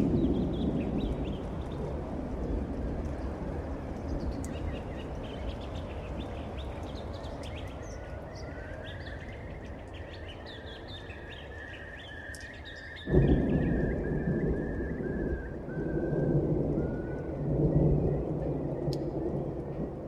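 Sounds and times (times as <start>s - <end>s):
storm noise: 0.0s - 6.8s, 12.9s - 20.0s
thunder rumbling: 0.0s - 9.9s, 12.8s - 20.0s
birds chirping: 0.0s - 19.6s.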